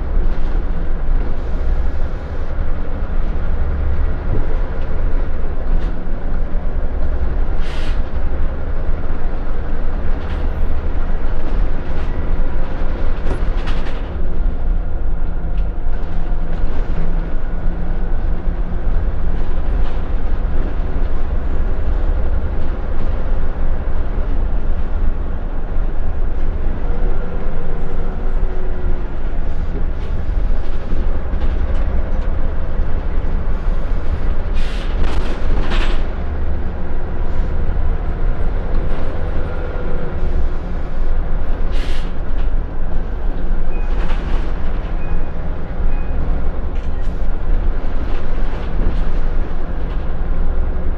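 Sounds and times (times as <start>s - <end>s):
bus diesel engine: 0.0s - 50.9s
road rumble: 0.0s - 50.9s.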